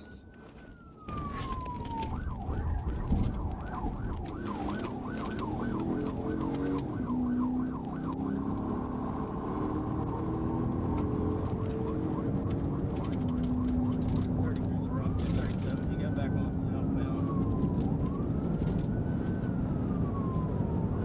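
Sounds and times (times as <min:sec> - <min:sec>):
police siren: 0:00.0 - 0:21.0
vehicle engine speeding up: 0:08.2 - 0:14.3.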